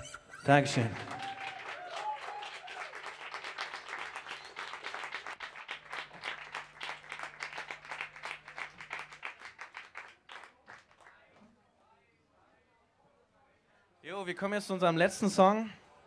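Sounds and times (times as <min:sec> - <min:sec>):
audience applauding: 0:00.4 - 0:11.3.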